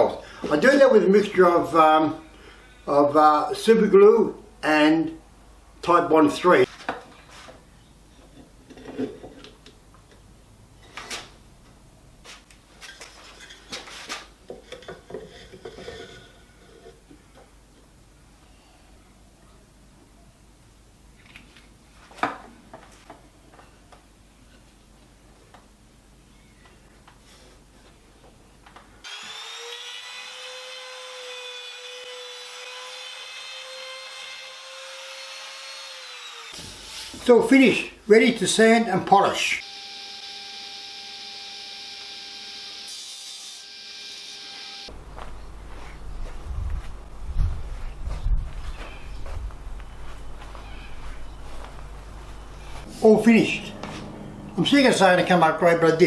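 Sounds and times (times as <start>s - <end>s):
power tool whine: 29.0s - 37.2s, 39.6s - 44.9s.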